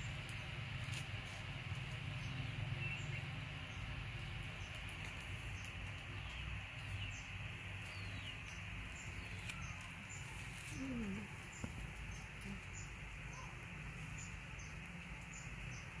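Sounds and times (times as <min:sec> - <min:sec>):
faint bird chirps: 0:04.6 - 0:16.0
falling coo-like call: 0:10.6 - 0:11.5.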